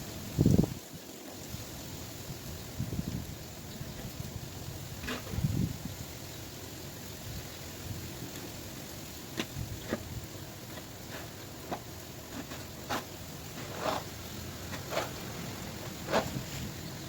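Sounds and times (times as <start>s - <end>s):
steady background hiss: 0.0s - 17.0s
snow crunching: 9.2s - 17.0s.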